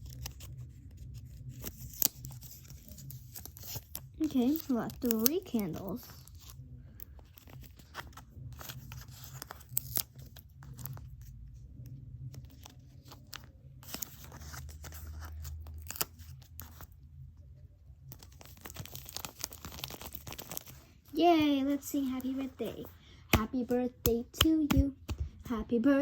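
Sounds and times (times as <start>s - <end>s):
wrapping crinkling: 0.0s - 11.4s, 12.3s - 17.0s, 18.0s - 23.0s.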